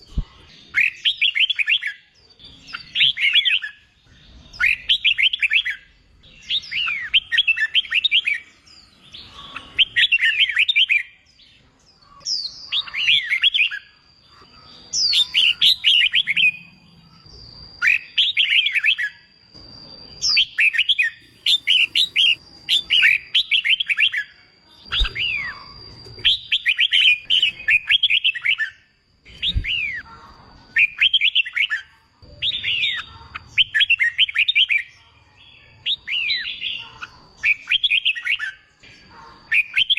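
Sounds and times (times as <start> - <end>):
bird singing warbling phrases: 0.0 - 39.9
faint steady high tone: 2.0 - 39.9.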